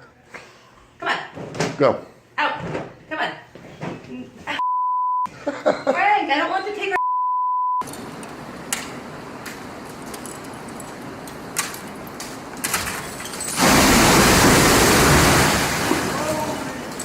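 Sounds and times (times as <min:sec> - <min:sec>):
steady high beep: 0:04.6 - 0:05.3, 0:07.0 - 0:07.8.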